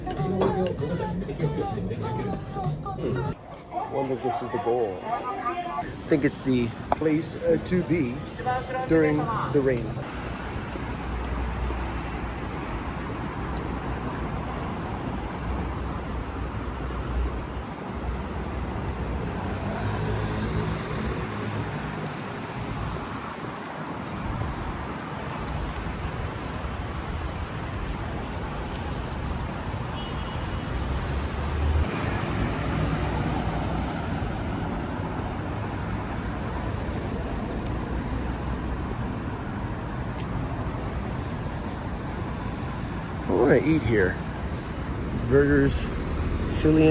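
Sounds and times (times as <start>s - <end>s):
road traffic rumbling past: 5.8s - 24.8s, 28.4s - 46.9s.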